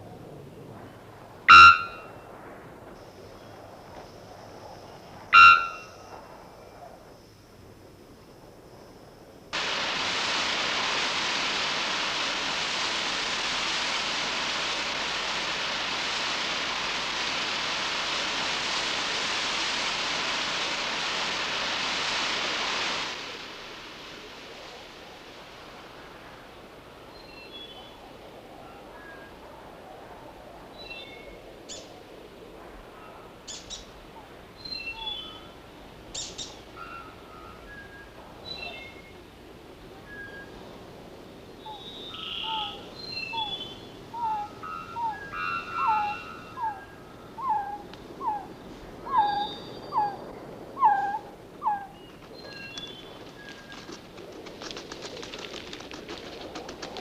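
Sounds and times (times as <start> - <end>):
steady background hiss: 0.0 - 57.0
bird whistling down-slurred notes: 5.4 - 5.9
bird whistled notes descending: 41.7 - 48.4.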